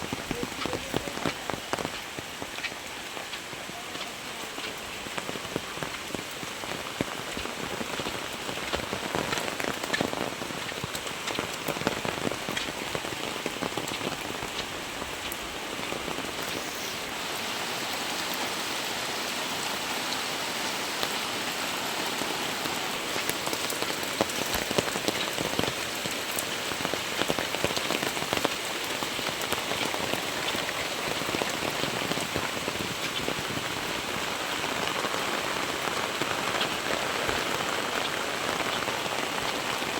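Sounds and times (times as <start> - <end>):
drips on nearby surfaces: 0.0 - 13.0
heavy rain falling: 0.0 - 39.9.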